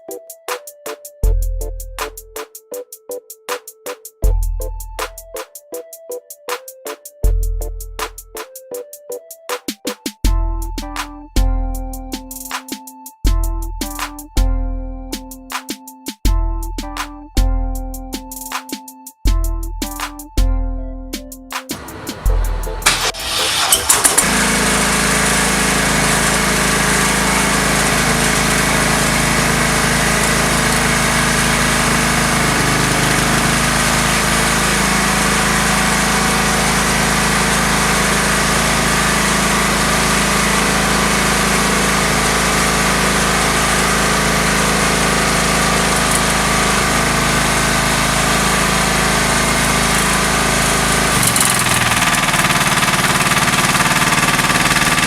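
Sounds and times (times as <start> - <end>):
generator engine droning: 21.7 - 55.0.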